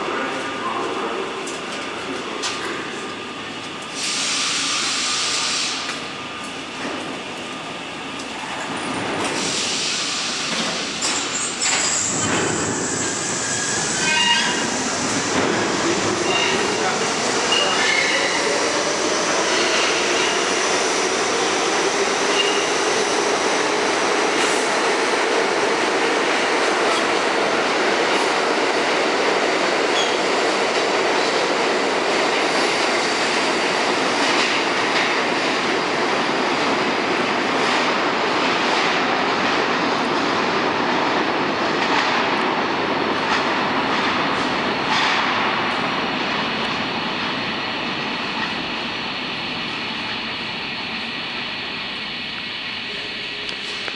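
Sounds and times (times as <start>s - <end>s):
subway train rumbling on tracks: 0.0s - 53.9s
metallic wheel squeal: 14.0s - 14.6s.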